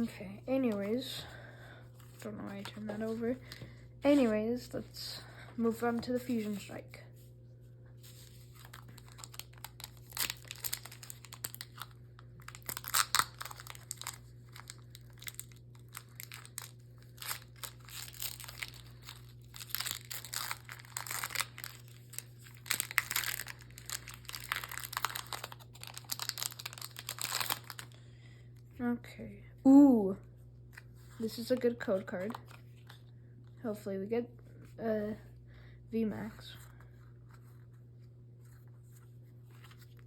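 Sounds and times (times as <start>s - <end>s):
foil wrapper crinkling: 8.0s - 28.0s.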